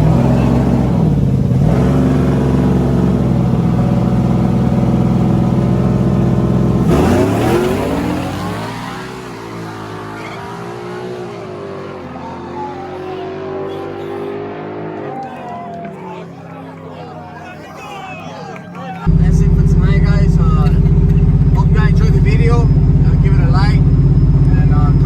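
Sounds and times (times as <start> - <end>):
car engine revving high: 0.0 - 18.0, 18.6 - 25.0
quieter engine revs rising and falling: 0.0 - 25.0.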